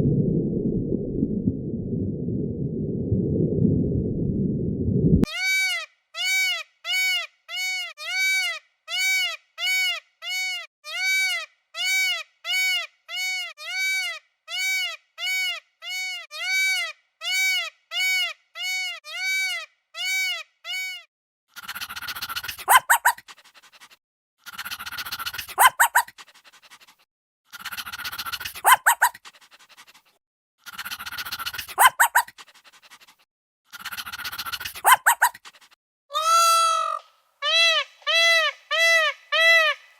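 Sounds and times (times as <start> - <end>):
high repeated animal chirping: 21.5 - 23.3, 24.4 - 26.2, 27.5 - 29.2, 30.6 - 32.4, 33.7 - 35.4
harsh raspy animal calls: 27.5 - 29.1, 33.7 - 35.4.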